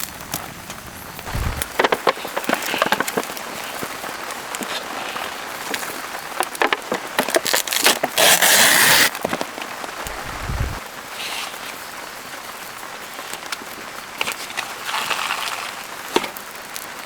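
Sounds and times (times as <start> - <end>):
rain pattering: 0.0 - 8.0, 9.1 - 17.0
loud burst of hiss: 1.2 - 1.8, 10.0 - 10.8.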